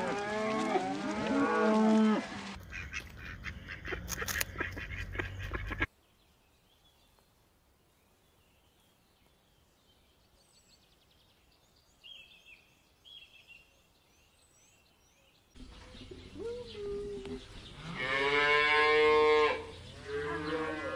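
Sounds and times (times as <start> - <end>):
birds chirping and whistling: 12.0 - 18.2.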